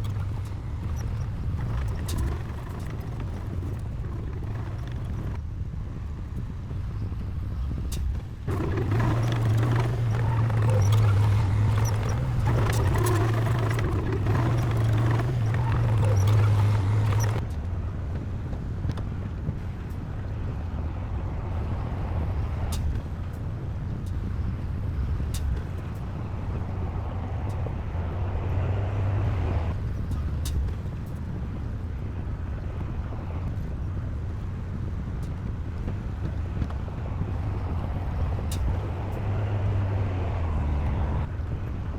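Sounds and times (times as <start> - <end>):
diesel machinery engine drone: 0.0 - 5.4, 8.5 - 17.4, 36.0 - 41.3.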